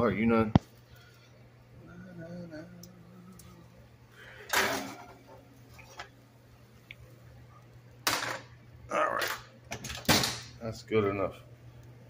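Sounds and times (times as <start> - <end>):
low hum: 0.7 - 9.1.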